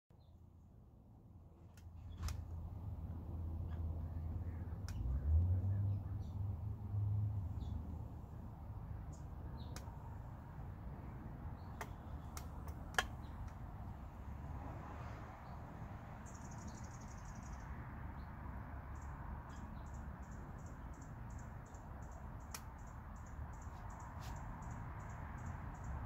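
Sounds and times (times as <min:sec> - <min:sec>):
distant city rumble: 0:00.2 - 0:26.0
sharp clicks: 0:11.7 - 0:13.6
small bird high chirps: 0:16.2 - 0:17.7.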